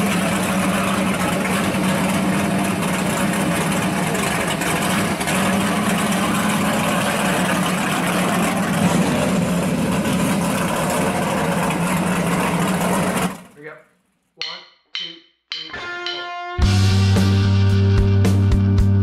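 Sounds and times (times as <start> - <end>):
car engine idling: 0.0 - 13.5.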